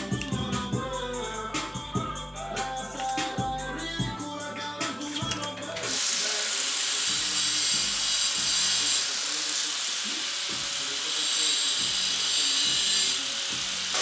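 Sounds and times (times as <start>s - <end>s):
background music with a beat: 0.0s - 6.4s, 7.0s - 8.8s, 10.5s - 10.8s, 11.8s - 14.0s
power tool whirring: 5.2s - 14.0s.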